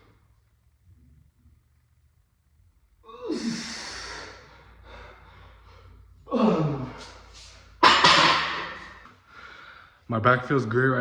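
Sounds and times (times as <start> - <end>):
man exhaling hard: 3.2 - 5.6.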